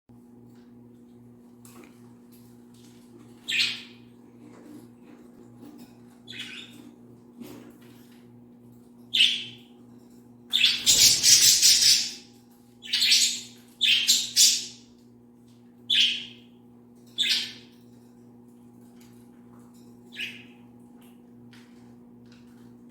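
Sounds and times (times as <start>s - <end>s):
budgerigars chirping and squawking: 3.4s - 4.0s, 6.3s - 6.9s, 9.2s - 9.6s, 10.5s - 14.9s, 15.9s - 16.5s, 17.2s - 17.7s, 20.1s - 20.6s.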